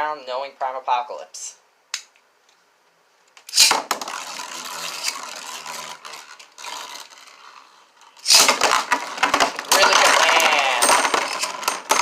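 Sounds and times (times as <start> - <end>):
spinning tops scraping and rattling: 3.4 - 12.0
spinning tops clattering: 3.5 - 12.0.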